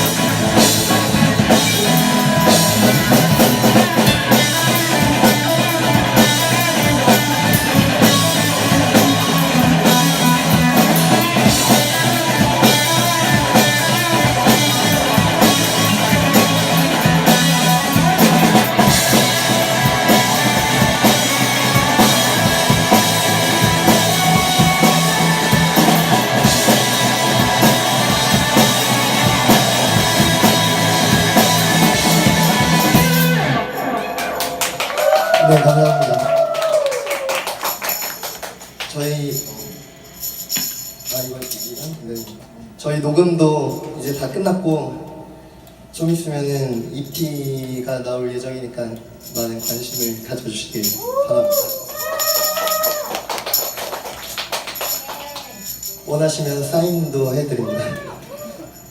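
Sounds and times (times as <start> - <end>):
driving drum beat: 0.0 - 33.9
rock band playing: 0.0 - 36.7.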